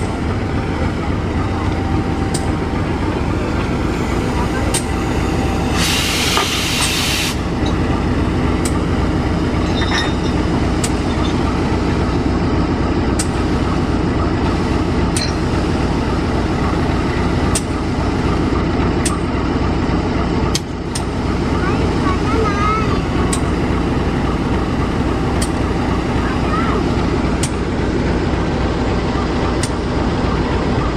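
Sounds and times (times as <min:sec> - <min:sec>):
locomotive engine rumbling: 0:00.0 - 0:30.9
air hiss: 0:05.7 - 0:07.4.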